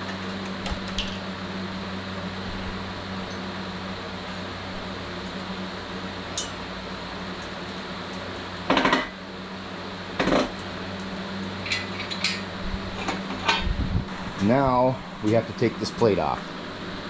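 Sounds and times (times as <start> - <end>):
steady low hum: 0.0 - 17.0
metal tools clinking and rattling: 11.5 - 13.6.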